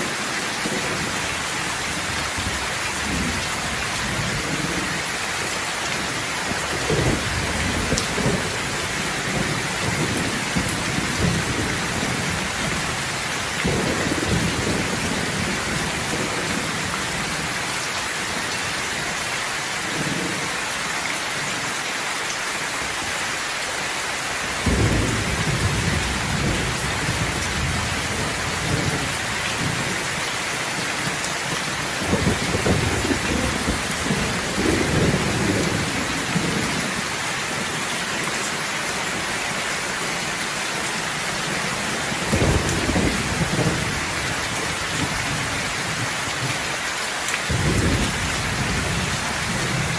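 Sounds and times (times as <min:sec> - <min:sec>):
steady rain: 0:00.0 - 0:49.9
thunder rumbling: 0:06.5 - 0:17.6, 0:24.6 - 0:37.1, 0:41.9 - 0:46.6, 0:47.5 - 0:49.9.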